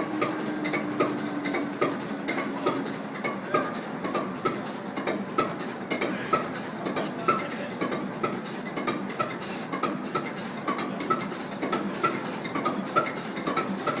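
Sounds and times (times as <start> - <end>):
large diesel engine clattering: 0.0 - 14.0.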